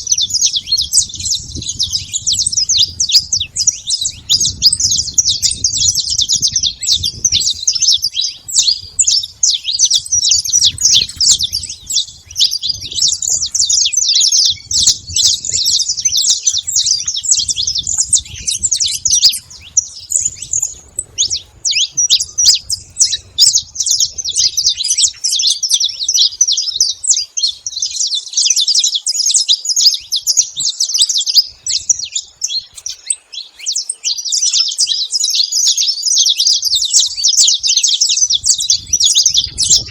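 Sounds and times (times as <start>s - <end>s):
finch singing: 0.0s - 39.9s.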